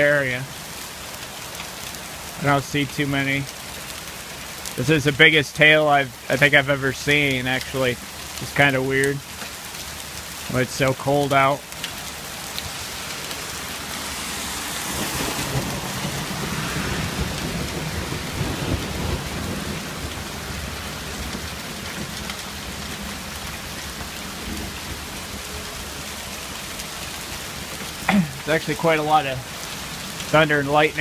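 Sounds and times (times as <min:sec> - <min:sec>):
hail and rain pelting down: 0:00.0 - 0:31.0
low rumble of thunder: 0:14.6 - 0:25.3.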